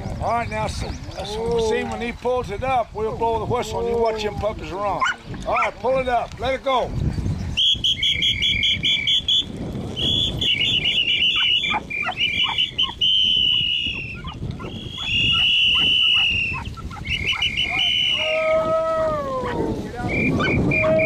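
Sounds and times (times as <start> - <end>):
dog whistle blown shrilly: 7.6 - 18.6, 20.0 - 21.0.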